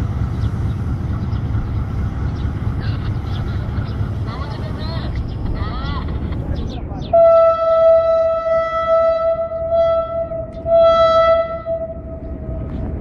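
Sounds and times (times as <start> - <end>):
locomotive horn: 7.1 - 12.6.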